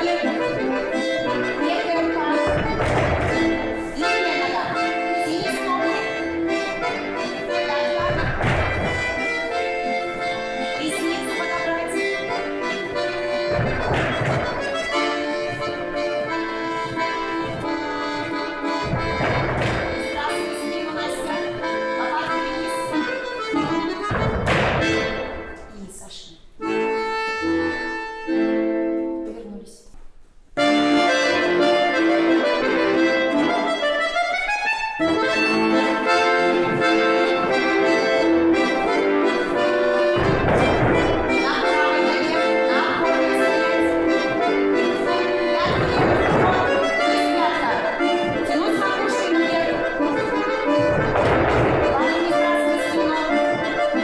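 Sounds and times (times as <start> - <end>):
accordion playing chords: 0.0 - 29.6, 30.6 - 54.0
dull thump: 2.3 - 3.8, 7.8 - 10.3, 11.4 - 20.6, 23.5 - 25.3, 35.4 - 42.1, 45.4 - 48.9, 49.6 - 52.6.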